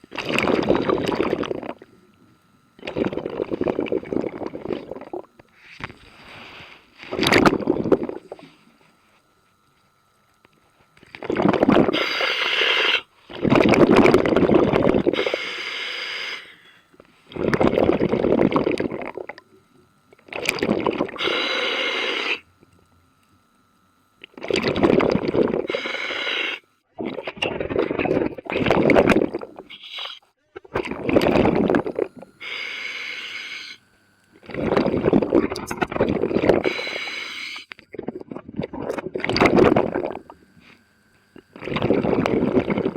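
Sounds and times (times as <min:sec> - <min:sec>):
exhaled bubbles: 0:00.0 - 0:05.4, 0:07.1 - 0:08.5, 0:11.1 - 0:16.5, 0:17.3 - 0:22.4, 0:24.2 - 0:42.9
regulator breathing hiss: 0:05.5 - 0:07.0, 0:11.9 - 0:13.3, 0:15.1 - 0:17.3, 0:21.2 - 0:22.5, 0:25.6 - 0:26.6, 0:29.7 - 0:30.3, 0:32.4 - 0:33.9, 0:36.6 - 0:37.8, 0:40.3 - 0:41.5.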